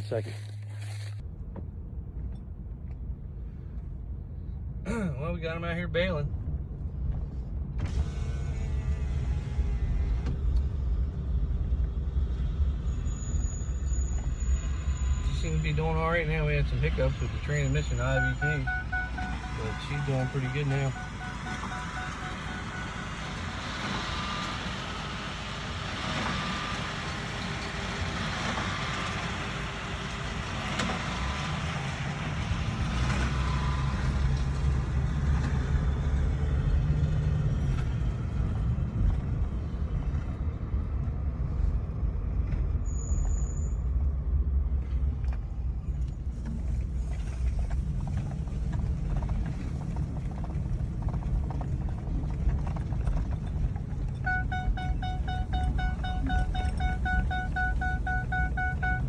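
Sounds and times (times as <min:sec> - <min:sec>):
tractor engine drone: 0:00.0 - 0:01.2, 0:07.8 - 0:37.5, 0:46.4 - 0:59.0.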